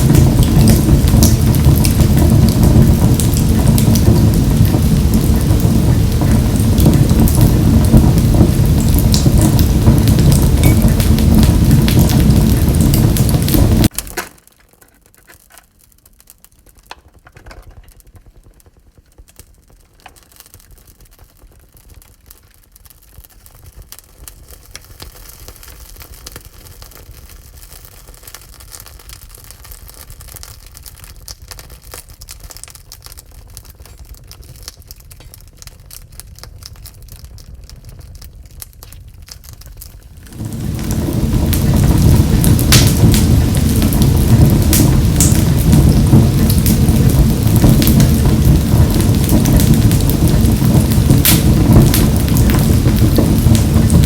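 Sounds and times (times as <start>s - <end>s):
low rumble: 0.0s - 13.9s, 40.1s - 54.0s
wood fire crackling: 0.0s - 54.0s
loud rushing noise: 40.3s - 54.0s.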